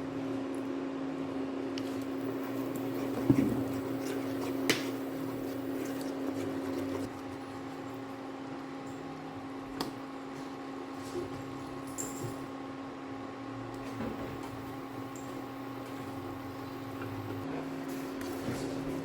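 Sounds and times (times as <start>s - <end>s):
motor humming: 2.0s - 7.1s, 13.9s - 17.5s.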